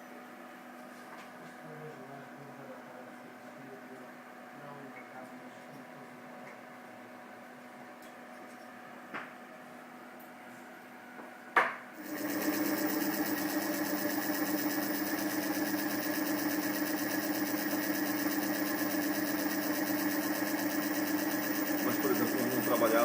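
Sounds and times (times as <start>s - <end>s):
electric motor hum and whine: 12.0s - 23.0s.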